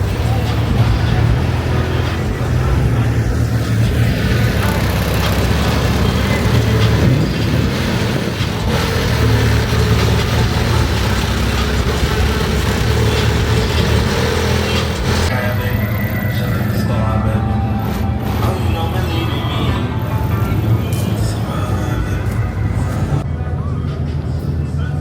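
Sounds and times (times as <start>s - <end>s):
car engines running: 0.0s - 25.0s.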